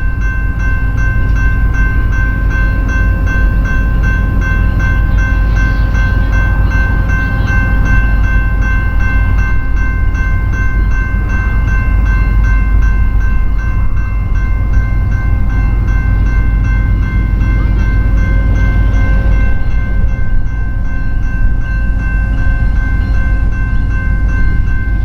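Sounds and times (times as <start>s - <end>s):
freight train rumbling: 0.0s - 25.0s
high-pitched ringing tone: 0.0s - 25.0s.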